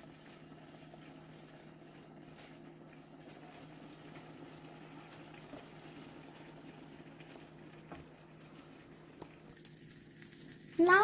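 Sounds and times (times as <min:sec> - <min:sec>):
omelette sizzling in a frying pan: 0:00.0 - 0:11.0.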